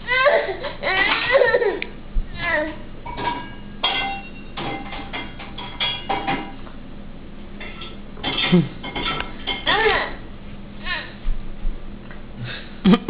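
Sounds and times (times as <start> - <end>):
baby squealing: 0.1 - 1.7.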